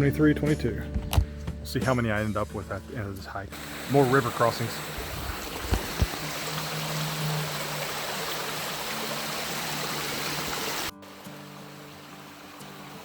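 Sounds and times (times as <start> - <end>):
stream water rushing: 3.5 - 13.0.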